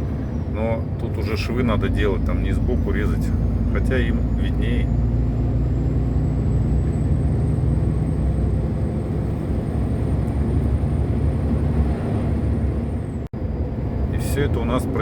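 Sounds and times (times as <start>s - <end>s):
road noise: 0.0s - 15.0s
truck engine drone: 0.0s - 15.0s.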